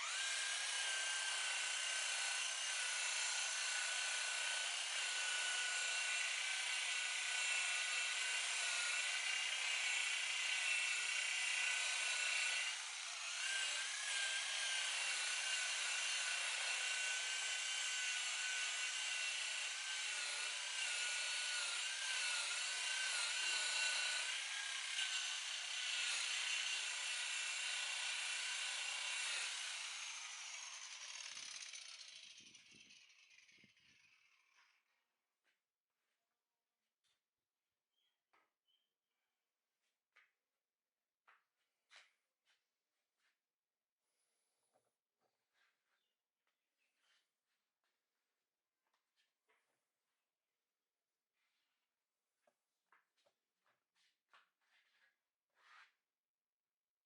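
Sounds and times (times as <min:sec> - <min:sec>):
power tool motor whine: 0:00.0 - 0:34.7.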